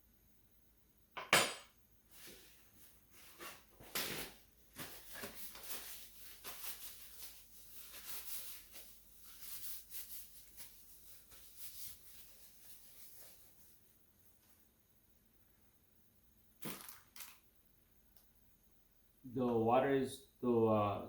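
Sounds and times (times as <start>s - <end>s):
scraping and rustling: 2.1s - 13.8s.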